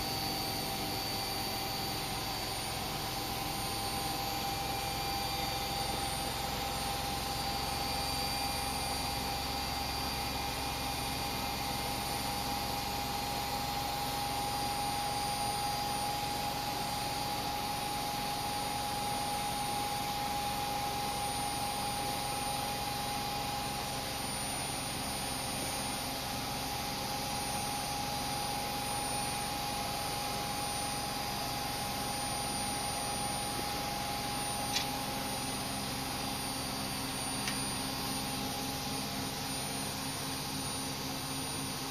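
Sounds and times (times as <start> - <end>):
washing machine whirring: 0.0 - 41.9.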